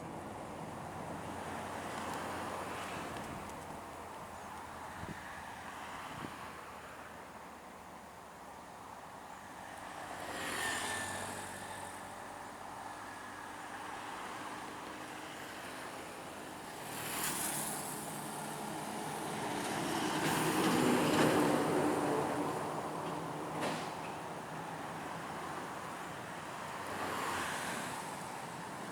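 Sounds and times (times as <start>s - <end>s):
trucks driving past: 10.1s - 28.9s.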